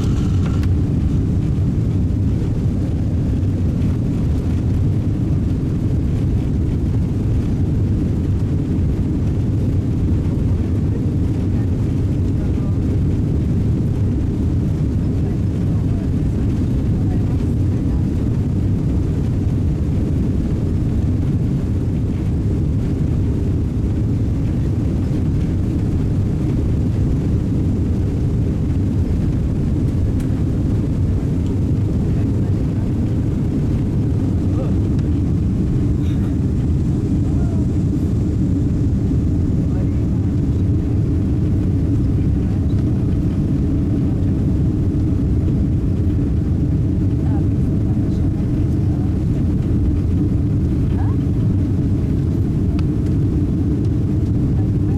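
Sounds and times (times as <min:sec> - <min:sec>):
airliner cabin rumble: 0:00.0 - 0:54.9.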